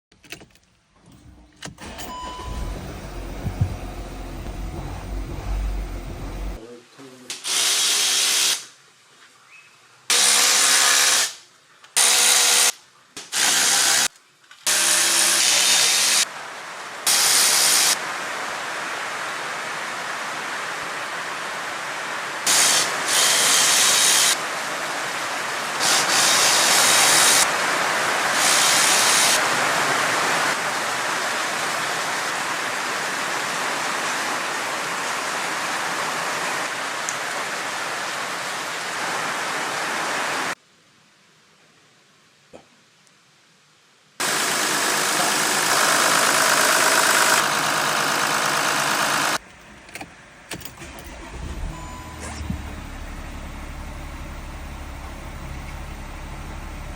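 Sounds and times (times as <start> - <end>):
cordless power tool whining: 1.8 - 6.6.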